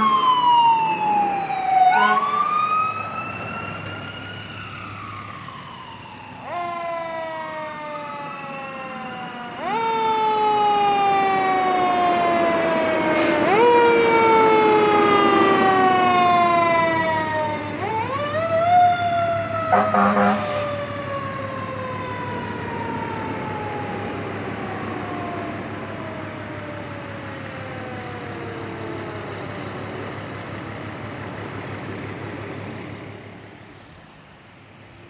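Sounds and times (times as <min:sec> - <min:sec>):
fire engine sirens wailing: 0:00.0 - 0:35.0.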